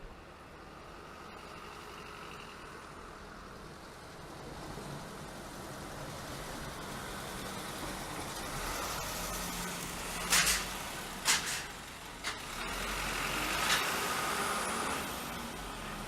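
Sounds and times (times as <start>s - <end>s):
rumble of vehicles: 0.0s - 16.0s.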